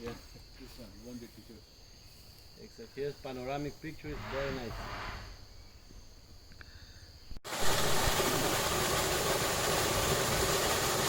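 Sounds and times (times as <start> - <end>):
high insect drone: 0.0 - 7.4.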